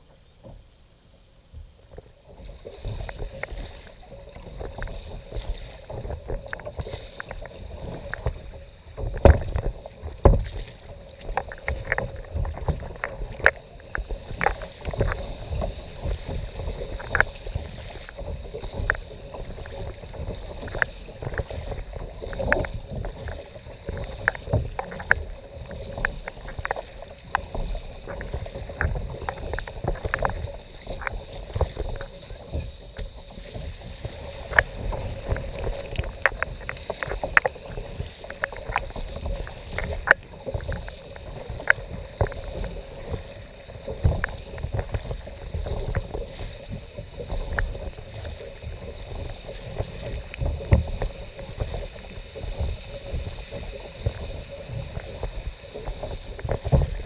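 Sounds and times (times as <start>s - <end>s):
water splashing around kayak: 0.0s - 57.0s
knocks against hull: 9.0s - 10.6s.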